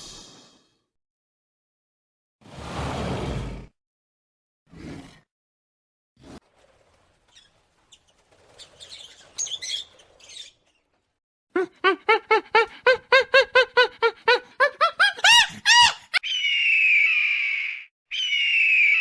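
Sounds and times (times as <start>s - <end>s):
bird calling in rapid notes: 15.2s - 19.0s.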